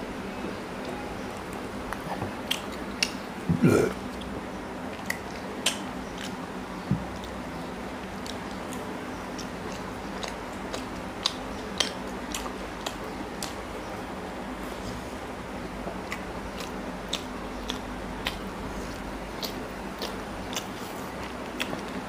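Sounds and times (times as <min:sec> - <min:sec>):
low background hum: 0:00.0 - 0:22.0
close chewing: 0:04.0 - 0:06.4, 0:08.0 - 0:13.7, 0:16.0 - 0:22.0
mouth clicks and smacks: 0:04.9 - 0:07.4.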